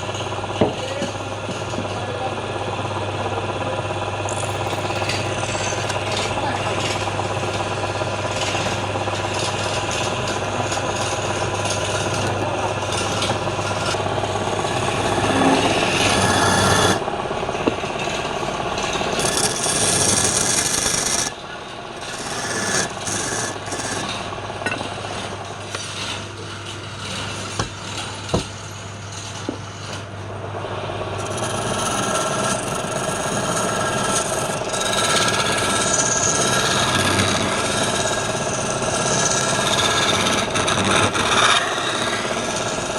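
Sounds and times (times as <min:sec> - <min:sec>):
turning tool scraping wood: 0:00.0 - 0:02.2, 0:04.2 - 0:30.2, 0:31.2 - 0:42.9
lathe motor hum: 0:00.0 - 0:42.9.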